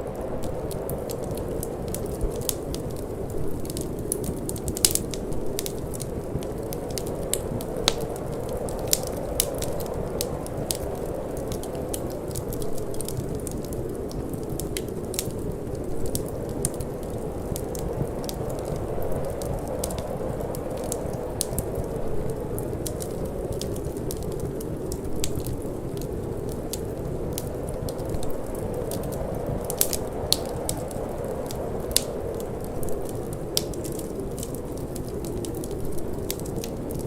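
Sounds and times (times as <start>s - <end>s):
low rush of wind: 0.0s - 37.0s
wood fire crackling: 0.0s - 37.0s.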